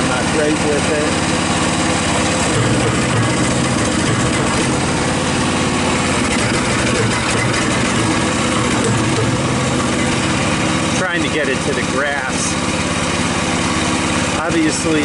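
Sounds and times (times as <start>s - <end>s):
mini excavator engine running: 0.0s - 15.0s.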